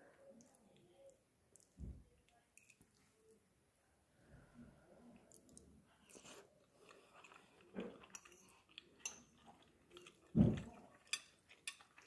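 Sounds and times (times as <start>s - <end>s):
person chewing food: 5.3s - 12.0s
low thump: 10.4s - 10.7s.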